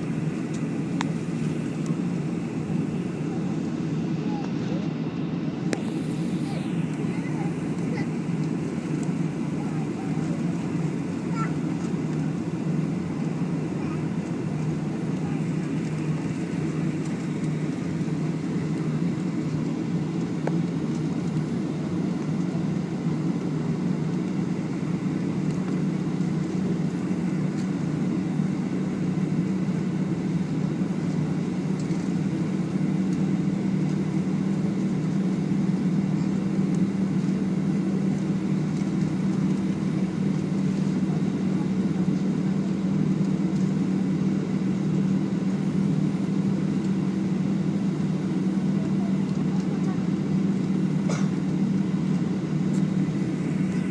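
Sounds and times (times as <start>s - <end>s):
airliner cabin hum: 0.0s - 53.9s.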